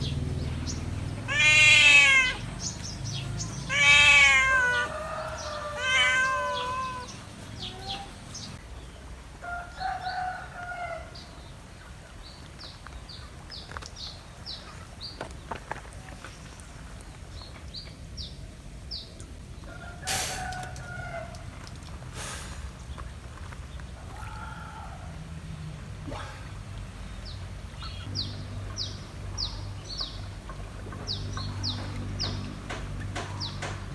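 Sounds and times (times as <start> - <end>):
small birds chirping: 0.0 - 9.0, 22.8 - 33.9
animal calling loudly: 1.3 - 2.6, 3.2 - 8.1.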